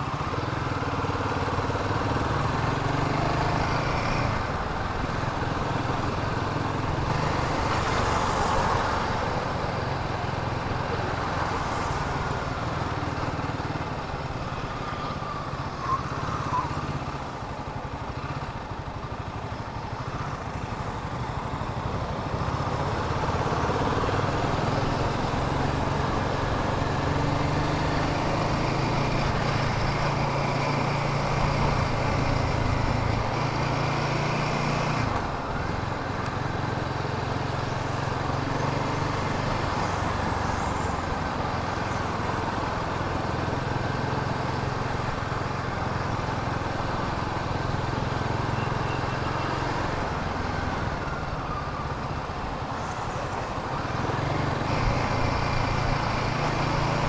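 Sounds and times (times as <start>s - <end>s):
motorcycle engine running: 12.5s - 50.4s, 53.8s - 57.0s.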